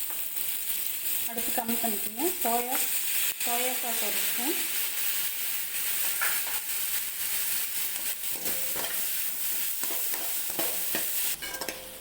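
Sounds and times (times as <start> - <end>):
onions sizzling in oil: 0.0 - 12.0
spoon scraping and knocking pan: 6.0 - 6.7, 7.9 - 12.0.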